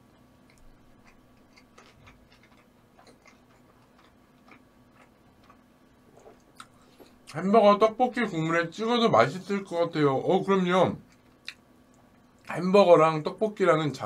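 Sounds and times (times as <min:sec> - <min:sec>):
low steady hum: 0:00.0 - 0:14.0
person chewing food: 0:00.1 - 0:07.4, 0:11.0 - 0:12.5.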